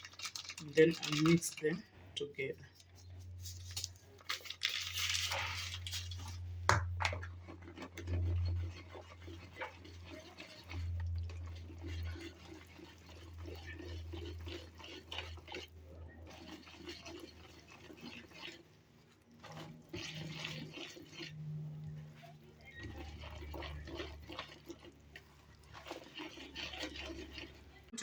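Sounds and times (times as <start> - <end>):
batter stirring in bowl: 0.0 - 28.0.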